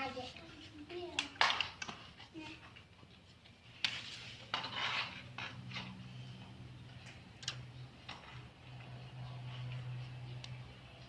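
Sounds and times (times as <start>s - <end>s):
tools and parts clicking: 7.0s - 8.4s.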